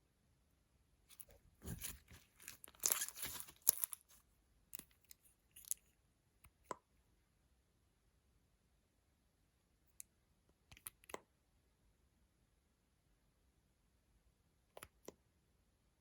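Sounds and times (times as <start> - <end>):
slime crunching and tearing: 1.8 - 4.1.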